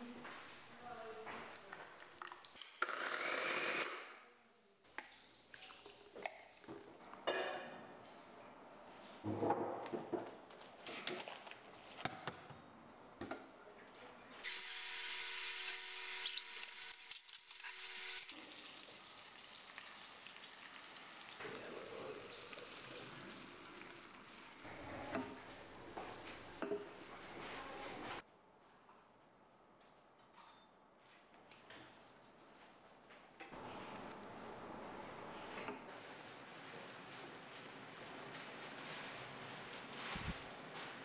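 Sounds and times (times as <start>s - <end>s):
chicken sizzling in a pan: 15.2s - 24.6s.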